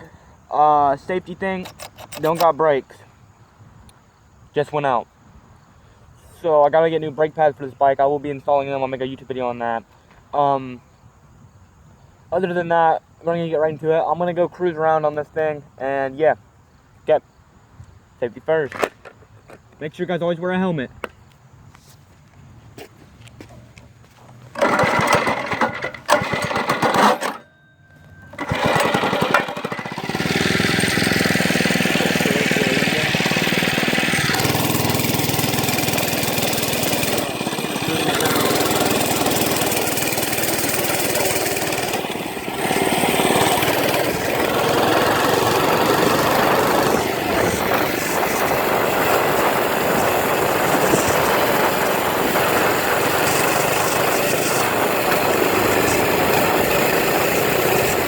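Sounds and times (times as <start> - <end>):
small motorbike engine running: 1.6 - 2.5, 24.0 - 58.0
wind buffeting microphone: 30.1 - 58.0.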